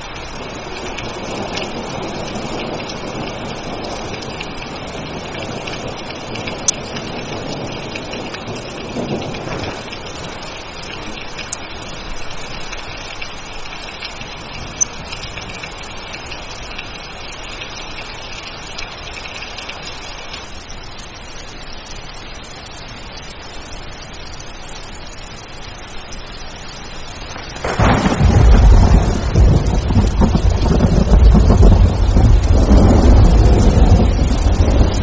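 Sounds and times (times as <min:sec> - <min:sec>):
rain falling: 0:00.0 - 0:35.0
thunder rumbling: 0:00.2 - 0:12.0, 0:27.4 - 0:35.0.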